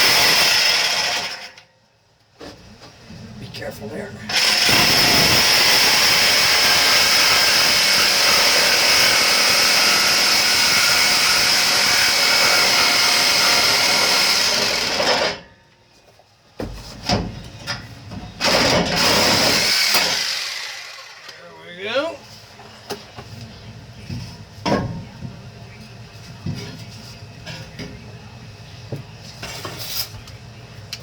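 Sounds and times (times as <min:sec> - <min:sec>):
reciprocating saw cutting metal pipe: 0:04.3 - 0:15.4, 0:18.4 - 0:21.3.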